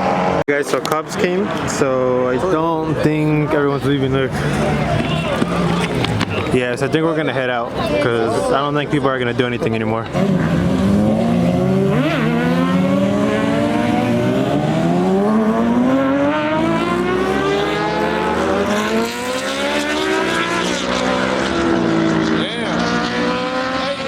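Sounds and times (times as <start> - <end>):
car engine accelerating hard: 10.0 - 24.0.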